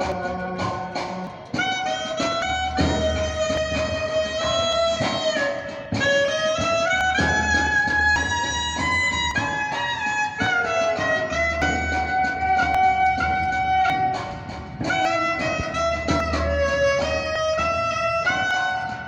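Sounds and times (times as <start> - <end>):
plucked guitar-like notes: 0.0 - 17.2
violin-like lead melody: 0.0 - 19.0.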